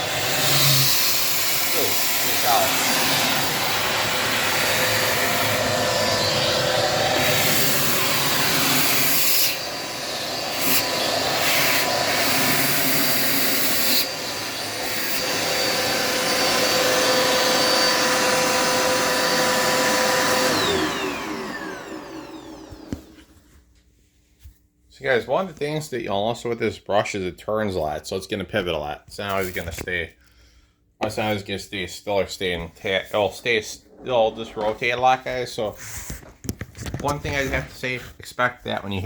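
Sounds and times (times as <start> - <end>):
vacuum motor winding down: 0.0 - 23.3
vacuum cleaner running: 0.0 - 23.6.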